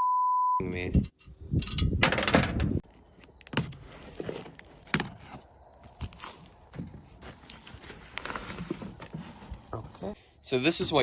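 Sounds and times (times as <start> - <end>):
metal parts knocking and clinking: 1.6 - 2.7
packaging rustling and crackling: 2.9 - 10.0.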